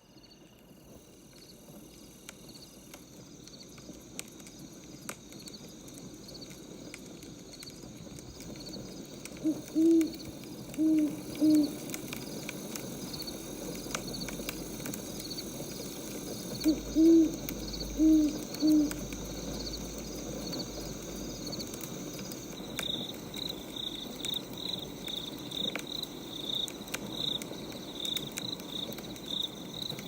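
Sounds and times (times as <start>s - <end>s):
crickets chirping: 0.0s - 30.0s
wood fire crackling: 0.4s - 30.0s
owl hooting: 9.4s - 12.0s, 16.5s - 19.2s.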